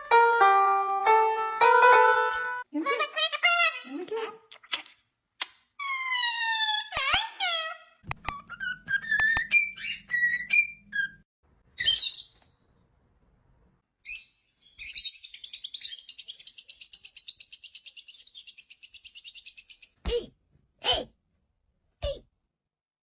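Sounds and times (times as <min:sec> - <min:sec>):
parrot whistled chirps: 0:08.3 - 0:11.2.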